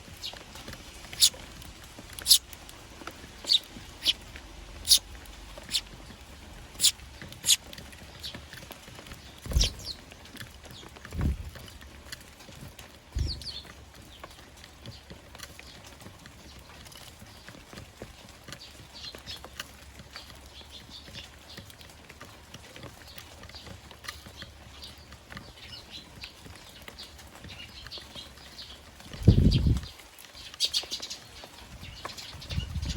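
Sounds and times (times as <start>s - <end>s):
sparrows chirping: 0.0s - 12.4s, 13.1s - 32.9s
low thumps: 13.2s - 13.6s.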